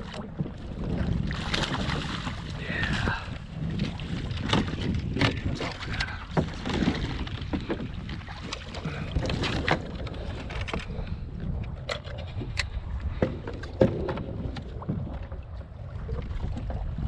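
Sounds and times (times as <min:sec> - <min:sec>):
wind rumbling on microphone: 0:00.0 - 0:17.0
knocks and taps on kayak hull: 0:03.8 - 0:10.8, 0:13.1 - 0:15.4.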